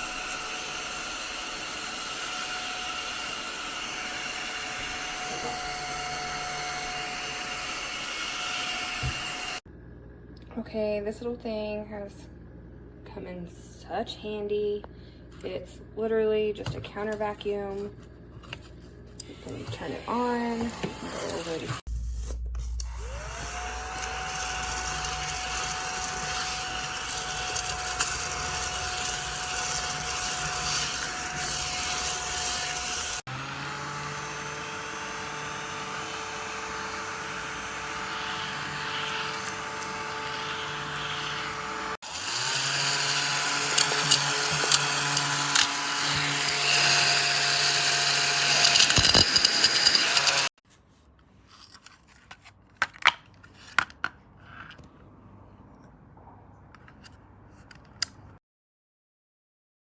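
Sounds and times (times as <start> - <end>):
mini vacuum cleaner motor whine: 0.0 - 9.6, 19.4 - 21.9, 22.8 - 50.5.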